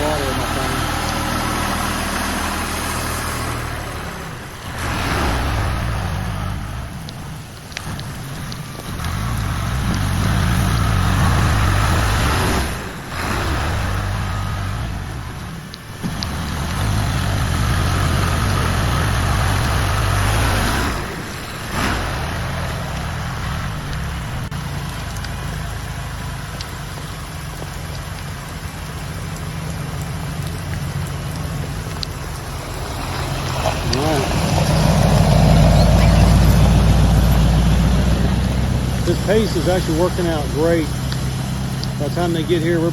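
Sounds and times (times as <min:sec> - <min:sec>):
diesel tractor engine running: 0:00.0 - 0:42.9
heavy rain falling: 0:00.0 - 0:42.9.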